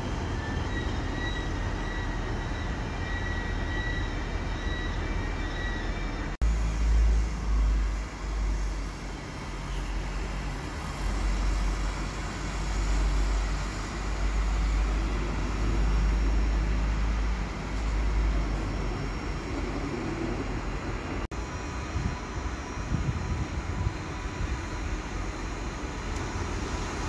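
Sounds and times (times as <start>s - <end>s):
train rumbling past: 0.0s - 27.0s.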